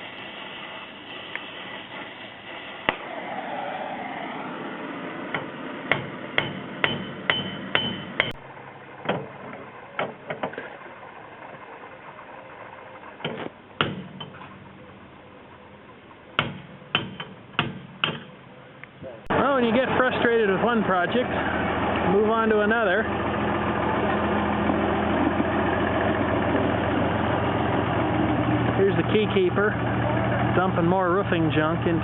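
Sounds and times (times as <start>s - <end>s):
steady hiss: 0.0s - 5.9s
hammer striking metal: 5.3s - 8.4s, 13.2s - 14.5s, 16.4s - 18.4s.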